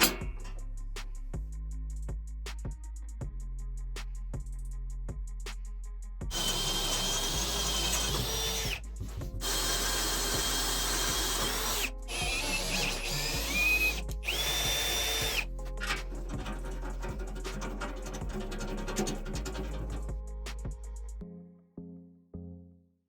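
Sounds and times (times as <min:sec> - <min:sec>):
background music: 0:00.0 - 0:22.9
electric power tool cutting: 0:06.3 - 0:08.8, 0:09.4 - 0:16.0.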